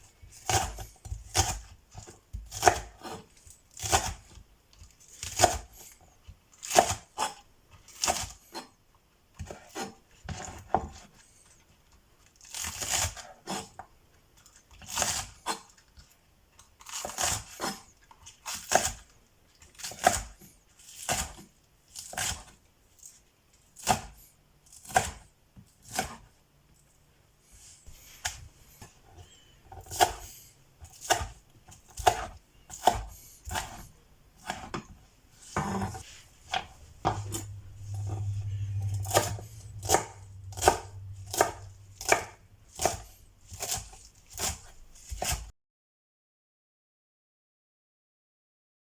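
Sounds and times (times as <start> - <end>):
vegetables being cut or torn: 0.3 - 4.4, 5.0 - 6.0, 16.7 - 19.1, 29.8 - 34.7, 35.4 - 45.5.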